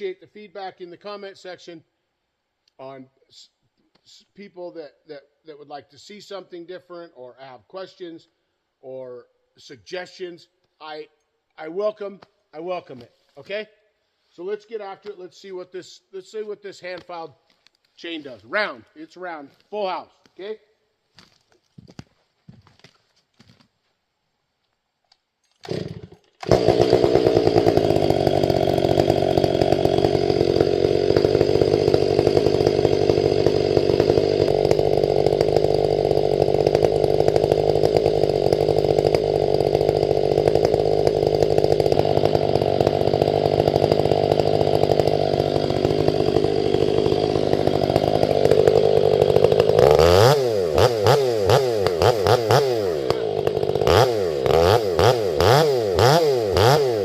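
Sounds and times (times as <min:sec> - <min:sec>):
chainsaw cutting log: 0:25.5 - 0:57.0.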